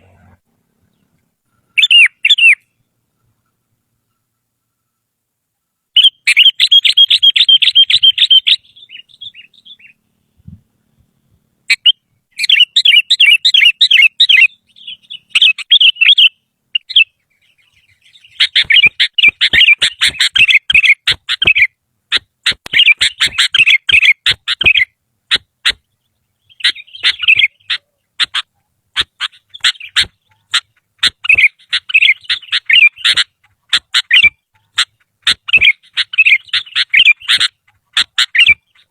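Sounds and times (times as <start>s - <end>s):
bird singing chattering phrases: 0.0s - 4.3s, 6.0s - 10.4s, 11.7s - 38.9s
sharp clicking bird notes: 18.2s - 25.9s, 26.5s - 38.9s.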